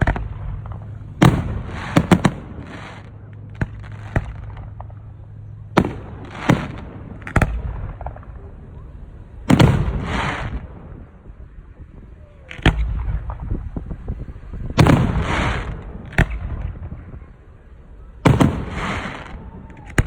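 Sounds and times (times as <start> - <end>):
fireworks hissing: 0.0 - 19.8
fireworks bursting with bangs: 0.0 - 20.0.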